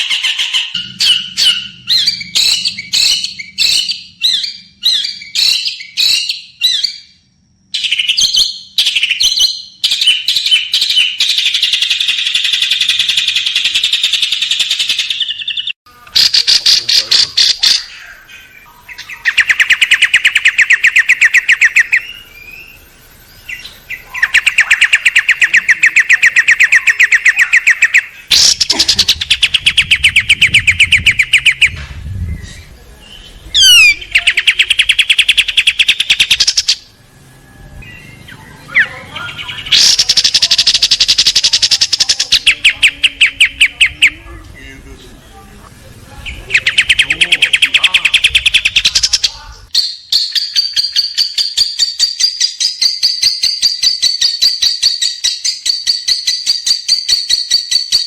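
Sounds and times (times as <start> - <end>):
songbird rattling song: 0.0 - 36.9, 37.8 - 44.2, 46.2 - 58.0.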